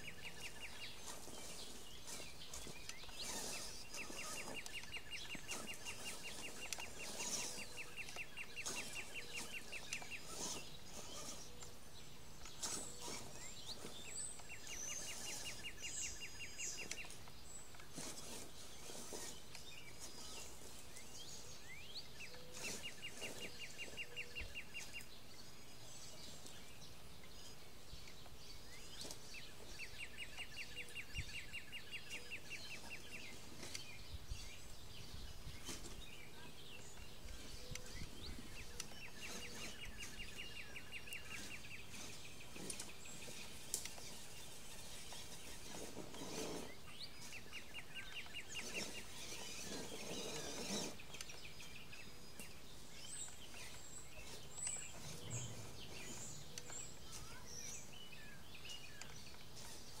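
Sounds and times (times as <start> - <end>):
bird rapid trill: 0.0 - 11.8, 12.4 - 17.3, 35.3 - 60.0
high bird chirps: 0.0 - 26.5, 27.3 - 60.0.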